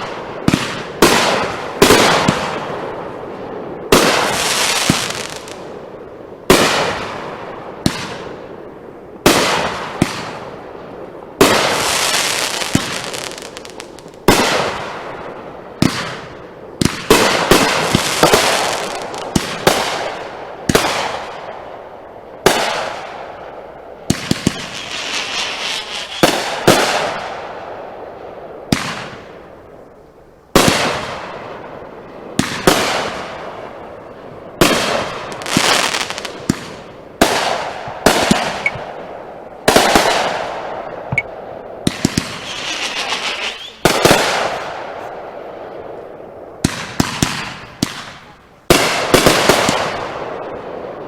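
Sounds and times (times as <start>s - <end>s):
fireworks bangs with crackle: 0.0s - 8.6s, 9.2s - 21.6s, 22.4s - 27.8s, 28.6s - 29.4s, 30.5s - 51.0s.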